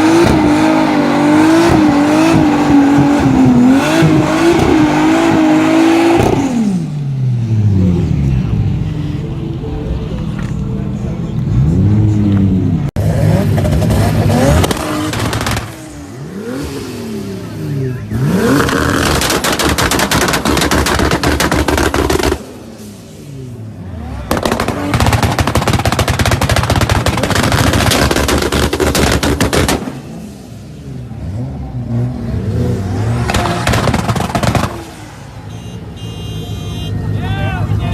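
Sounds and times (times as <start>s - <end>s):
car engine revving: 0.0s - 35.6s
rapid crackling exhaust bangs: 13.2s - 16.6s, 18.0s - 22.9s, 24.1s - 30.3s, 33.2s - 35.1s.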